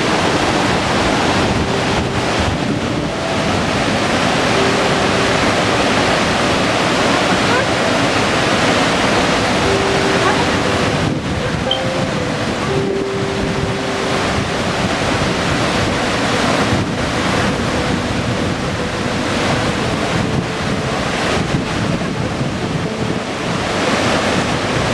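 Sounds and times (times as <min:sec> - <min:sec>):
waterfall roaring: 0:00.0 - 0:24.9
wind buffeting microphone: 0:00.0 - 0:24.9.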